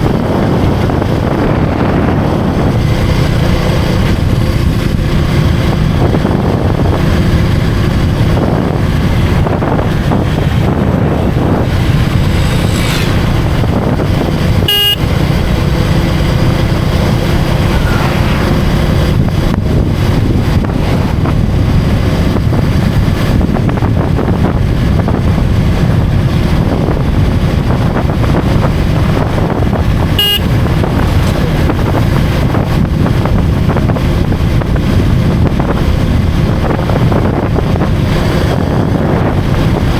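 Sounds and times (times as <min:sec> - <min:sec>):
motorcycle engine running: 0:00.0 - 0:39.9
wind and road noise: 0:00.0 - 0:39.9
brief beeps: 0:14.7 - 0:15.0, 0:30.2 - 0:30.4.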